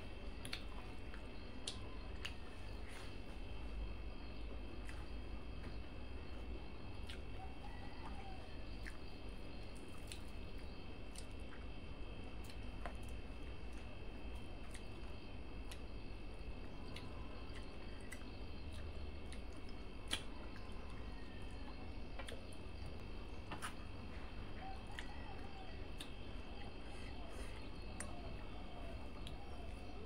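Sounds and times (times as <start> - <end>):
background hum: 0.0 - 30.0
fingers squishing soft rice: 0.0 - 30.0
wet chewing: 0.4 - 3.2, 7.0 - 11.7, 12.4 - 30.0
lip smacks: 16.9 - 20.5.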